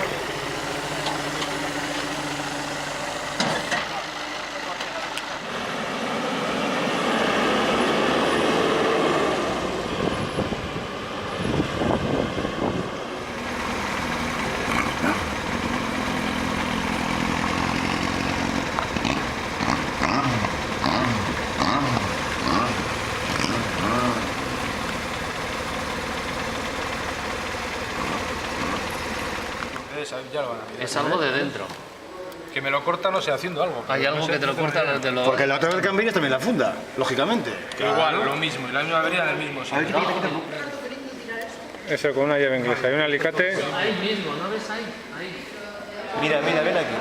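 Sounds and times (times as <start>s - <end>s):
motorcycle engine: 0.0s - 30.3s
road noise: 0.0s - 47.0s.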